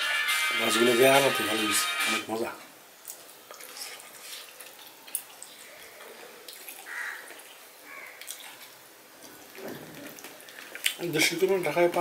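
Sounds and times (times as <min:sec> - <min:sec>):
quiet wet chewing: 0:03.0 - 0:12.0
mouth clicks and smacks: 0:08.2 - 0:11.1.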